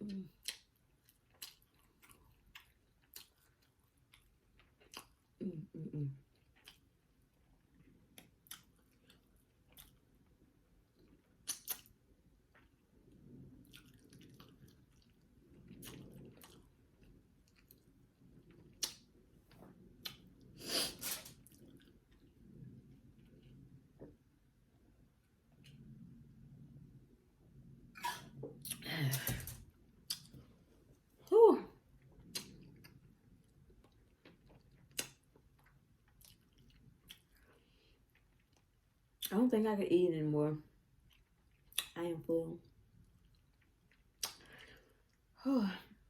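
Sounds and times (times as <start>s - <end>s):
mouth chewing food: 0.1s - 24.2s, 30.0s - 30.5s, 32.0s - 39.3s, 41.0s - 42.0s, 43.0s - 45.3s.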